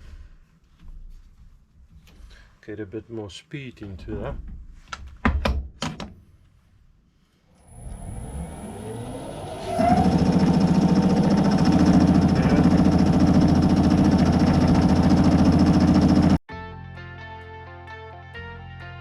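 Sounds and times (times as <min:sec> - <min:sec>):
lathe spinning up: 0:07.6 - 0:16.4.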